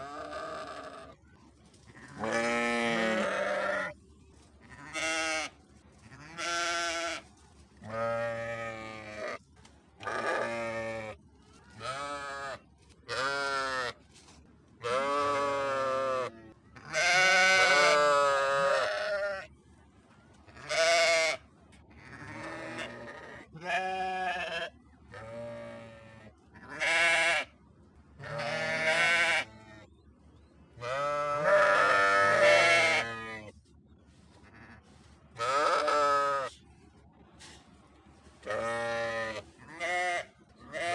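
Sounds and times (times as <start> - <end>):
sheep bleating: 0.0 - 1.2, 2.0 - 4.0, 4.7 - 5.5, 6.1 - 7.2, 11.8 - 14.0, 14.8 - 19.5, 20.6 - 21.4, 22.0 - 27.5, 28.2 - 29.6, 30.8 - 33.5, 35.4 - 36.5, 38.4 - 40.9.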